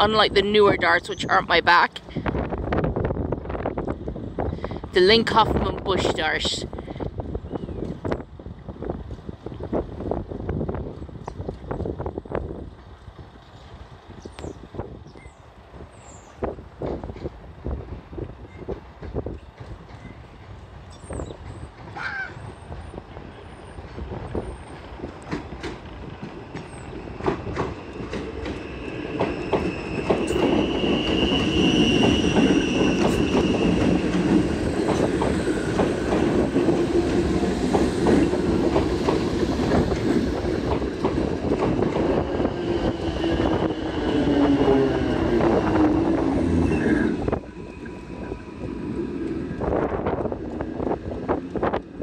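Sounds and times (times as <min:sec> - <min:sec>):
train rumble: 0:00.0 - 0:52.0
wheels clicking over rail joints: 0:23.7 - 0:43.0
wheel squeal: 0:28.6 - 0:34.1, 0:46.5 - 0:48.6
falling whine: 0:41.9 - 0:52.0.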